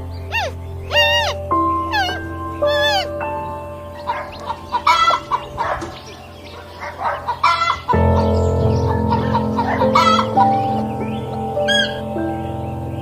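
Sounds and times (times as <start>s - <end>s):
background music: 0.0s - 13.0s
chickens clucking: 3.9s - 8.0s
sharp chicken calls: 4.0s - 8.0s.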